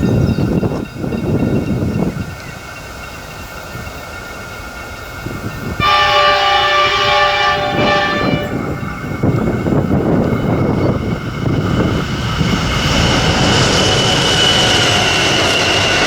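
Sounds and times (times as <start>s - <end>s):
train rumbling: 0.0s - 16.0s
train air horn blast: 5.8s - 9.1s.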